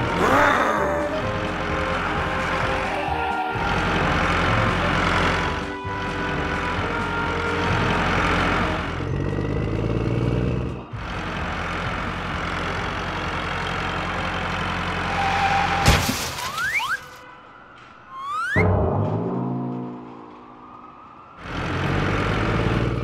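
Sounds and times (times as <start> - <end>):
tractor engine running: 0.8 - 15.2.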